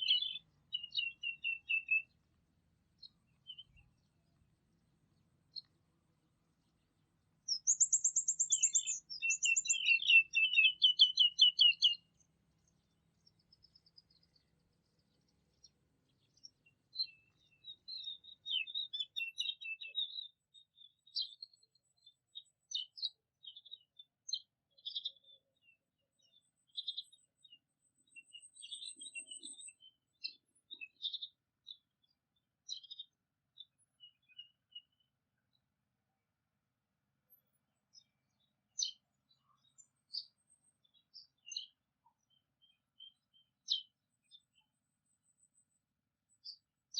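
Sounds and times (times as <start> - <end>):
songbird trilling: 0.0 - 2.1, 7.5 - 12.0
bird chirps and twitters: 0.0 - 2.2, 3.0 - 4.2, 7.5 - 35.5, 37.3 - 46.7.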